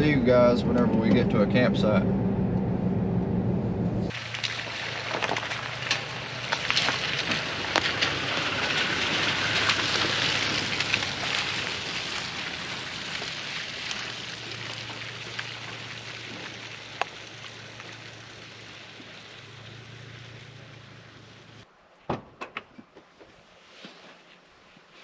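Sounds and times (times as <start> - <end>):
rain pattering: 4.1 - 21.6.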